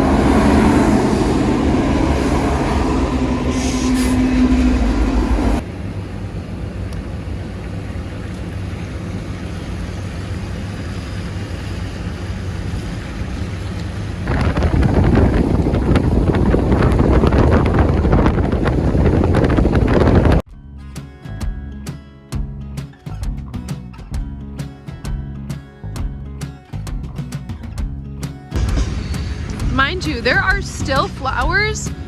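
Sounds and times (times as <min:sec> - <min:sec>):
wind noise on microphone: 0:00.0 - 0:05.6, 0:14.2 - 0:20.4
low rumble of moving vehicle: 0:00.0 - 0:20.4, 0:21.3 - 0:32.0
train noise with steady tone: 0:00.0 - 0:20.4, 0:28.6 - 0:32.0
microphone crackling: 0:14.3 - 0:20.4.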